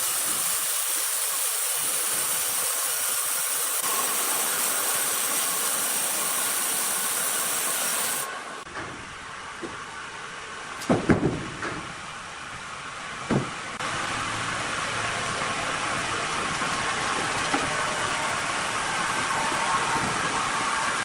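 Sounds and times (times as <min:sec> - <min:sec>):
saw cutting noise: 0:00.0 - 0:08.6, 0:13.8 - 0:21.0
sawmill machinery hissing: 0:00.0 - 0:08.7, 0:13.8 - 0:21.0
heavy knocks of wood: 0:10.9 - 0:11.8.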